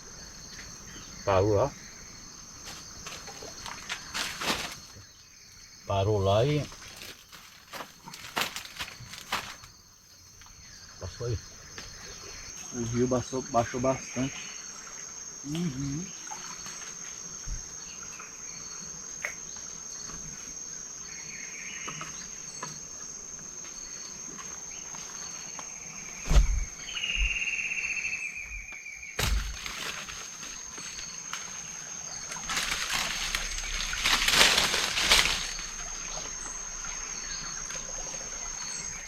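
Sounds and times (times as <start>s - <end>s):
high-pitched insect drone: 12.1s - 20.4s.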